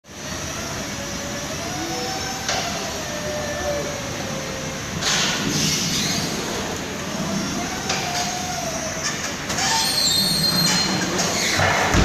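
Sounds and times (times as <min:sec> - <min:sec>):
forklift running: 0:00.1 - 0:12.0.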